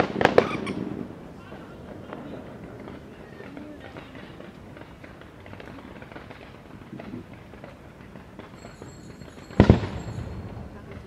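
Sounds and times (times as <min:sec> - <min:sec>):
faint firework pops: 0:00.0 - 0:00.9, 0:02.0 - 0:11.0
loud firework bang: 0:00.0 - 0:01.2, 0:09.4 - 0:11.0.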